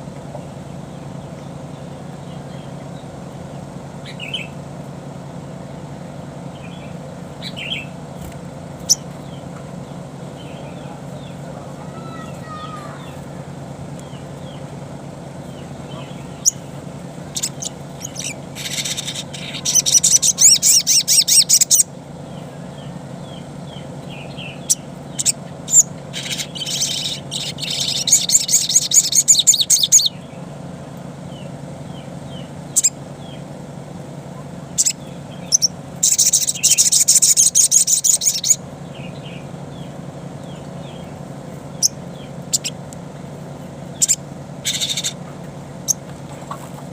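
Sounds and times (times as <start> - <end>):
bird chattering song: 0.0 - 4.8, 6.4 - 46.9
steady low hum: 0.0 - 46.9
bird sharp chips: 6.7 - 9.6, 15.5 - 21.8, 23.8 - 30.1, 34.8 - 42.8, 43.9 - 46.8.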